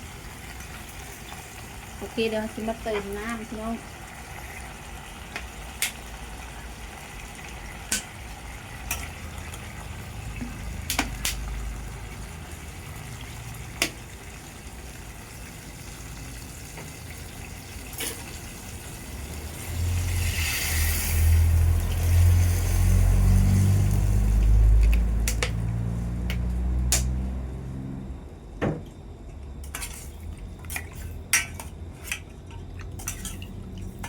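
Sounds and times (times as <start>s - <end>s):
pot bubbling: 0.0s - 27.4s
utensil clicking against pot: 24.8s - 25.6s.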